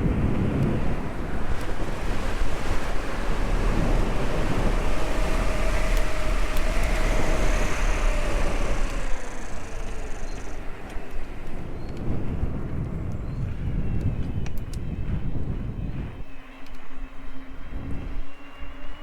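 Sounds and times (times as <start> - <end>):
road noise: 0.0 - 16.2
wind rumbling over microphone: 0.0 - 19.0
faint rising and falling tone: 0.8 - 11.3.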